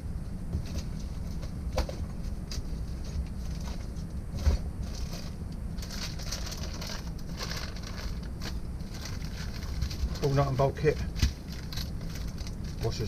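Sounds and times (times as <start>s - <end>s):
steady low rumble: 0.0s - 13.0s
plastic packaging rustling: 3.0s - 13.0s.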